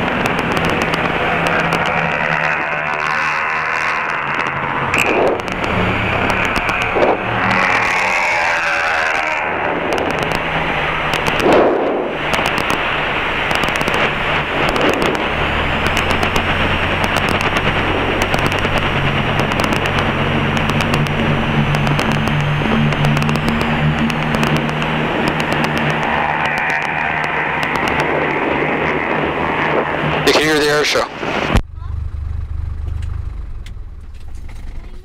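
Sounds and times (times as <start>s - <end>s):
sharp clicks: 0.0s - 2.1s, 4.4s - 8.0s, 9.9s - 28.2s
airplane engine drone: 0.0s - 35.0s.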